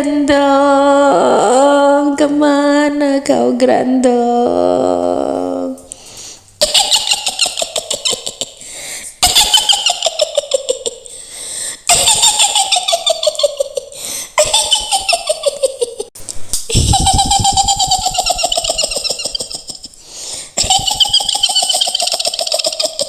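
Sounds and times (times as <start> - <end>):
shrill cackling laugh: 6.6 - 8.6, 9.2 - 11.1, 11.9 - 16.1, 16.7 - 20.0, 20.6 - 23.0.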